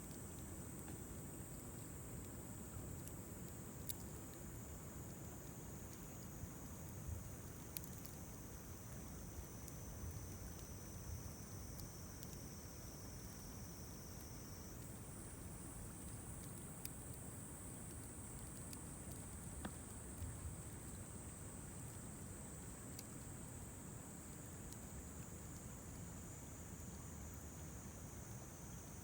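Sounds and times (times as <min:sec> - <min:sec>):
campfire crackling and popping: 0:00.1 - 0:13.5, 0:14.2 - 0:21.1
insect trill: 0:03.9 - 0:20.4.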